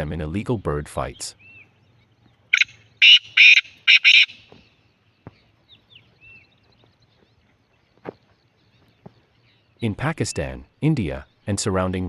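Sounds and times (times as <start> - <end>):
bird harsh grating call: 2.5 - 4.8.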